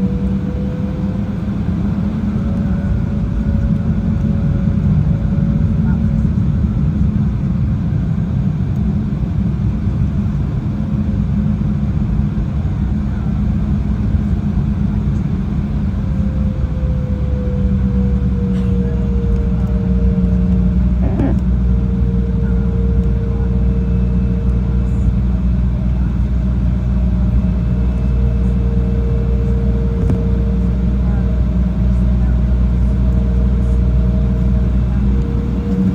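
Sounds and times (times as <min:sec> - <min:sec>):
jet engines and airflow rumble: 0:00.0 - 0:35.9
steady cabin hum: 0:09.7 - 0:35.9.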